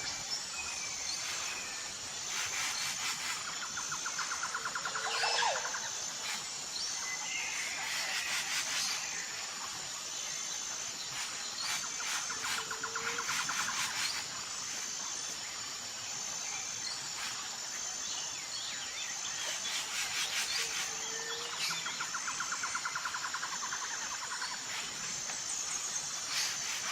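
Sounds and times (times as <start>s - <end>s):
high insect drone: 0.0s - 26.9s.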